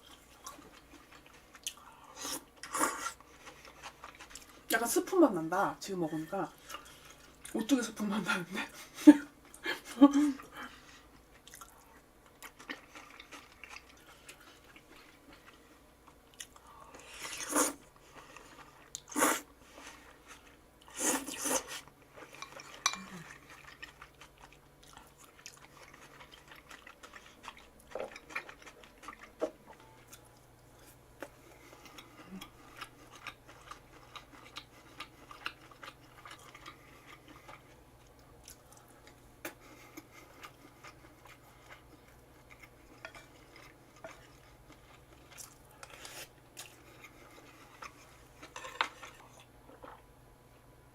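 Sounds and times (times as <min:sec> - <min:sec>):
person chewing and crunching food: 0:00.0 - 0:04.8, 0:06.5 - 0:07.6, 0:09.4 - 0:50.1.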